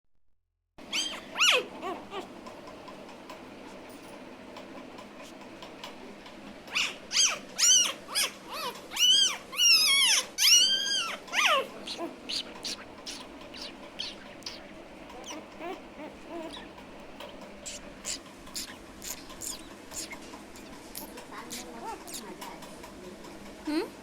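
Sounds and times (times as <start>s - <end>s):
puppy whining and yelping: 0.8s - 2.6s, 6.7s - 22.2s.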